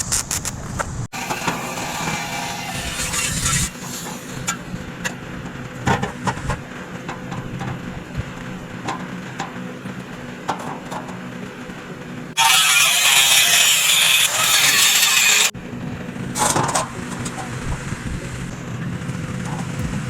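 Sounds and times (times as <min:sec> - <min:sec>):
low machine hum: 0:15.6 - 0:20.0.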